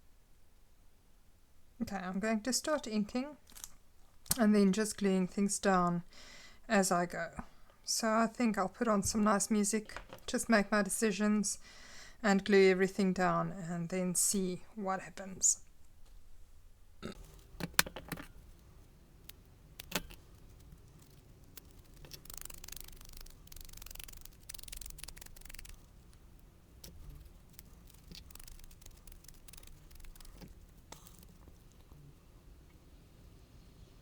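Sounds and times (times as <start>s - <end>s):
small ticks: 17.1s - 32.8s
paper rustling: 17.2s - 31.9s.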